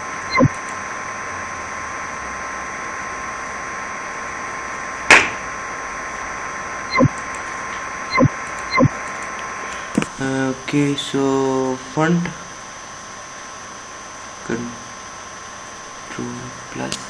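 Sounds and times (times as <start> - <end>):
microphone hiss and hum: 0.0 - 17.0
sharp clicks: 8.1 - 9.4.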